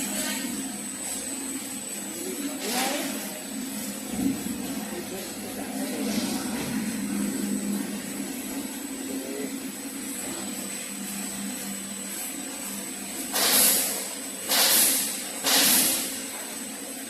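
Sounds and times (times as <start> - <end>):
low machine hum: 0.0 - 17.0
compressed air hissing: 13.2 - 16.3.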